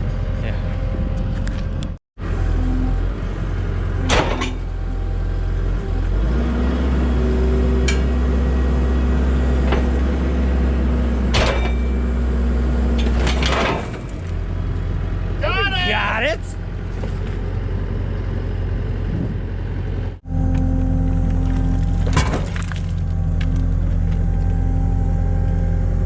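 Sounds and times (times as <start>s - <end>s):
skid steer engine running: 0.0s - 26.0s
sharp metal clanks: 11.3s - 12.1s.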